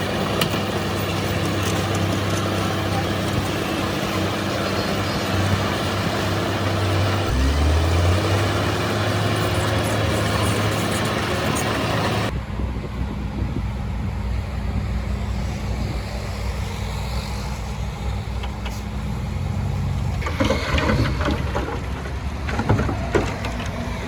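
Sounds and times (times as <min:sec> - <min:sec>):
diesel machine engine humming: 0:00.0 - 0:24.0
clattering: 0:20.1 - 0:24.0.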